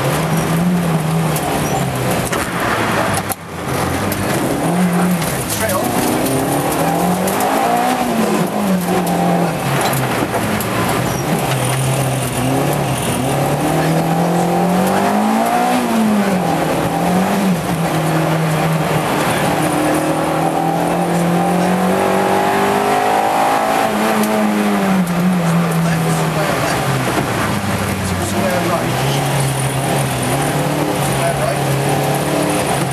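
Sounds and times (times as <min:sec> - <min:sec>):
car engine revving from inside cabin: 0:11.4 - 0:26.9, 0:28.5 - 0:32.9.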